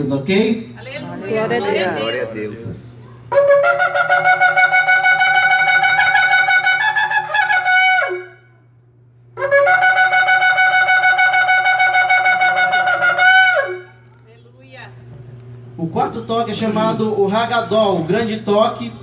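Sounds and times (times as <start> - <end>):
shofar blasts: 3.3 - 8.7, 9.4 - 14.2.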